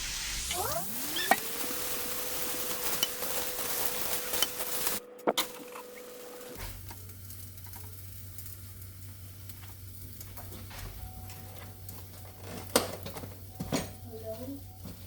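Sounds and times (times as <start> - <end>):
food sizzling in a frying pan: 0.0 - 14.9.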